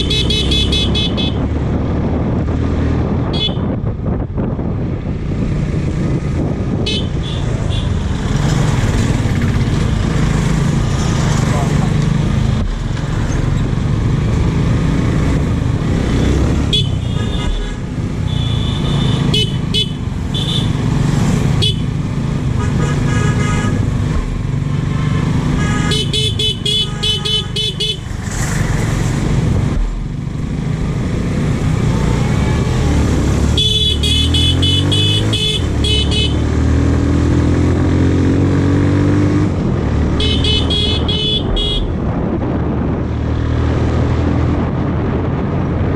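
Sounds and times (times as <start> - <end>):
horn honks: 0.0 - 1.4, 3.3 - 3.8, 16.7 - 20.8, 22.6 - 23.9, 25.6 - 28.1, 33.5 - 36.5, 40.2 - 42.0.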